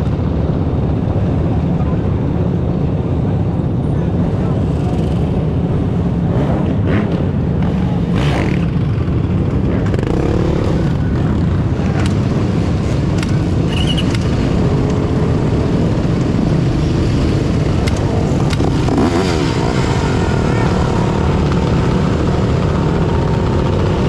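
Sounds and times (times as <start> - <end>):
dirt bike engines running: 0.0 - 24.0
engine revving: 6.2 - 24.0.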